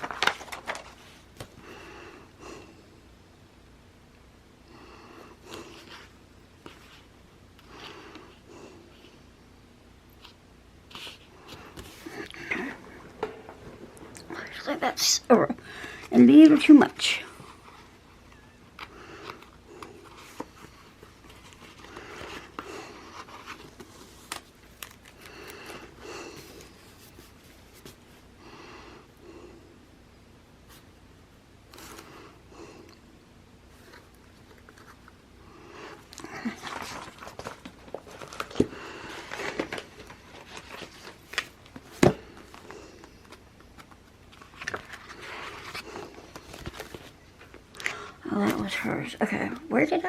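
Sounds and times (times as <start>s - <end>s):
paper rustling and crinkling: 0.0s - 1.6s, 18.7s - 28.2s, 33.7s - 35.2s, 36.0s - 47.8s.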